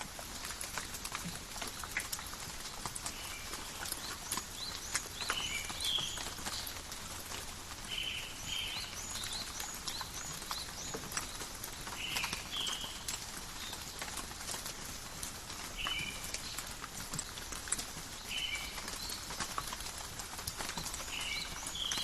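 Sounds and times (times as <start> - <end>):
rain pattering on leaves: 0.0 - 22.0
birds chirping: 3.0 - 7.0, 7.8 - 13.9.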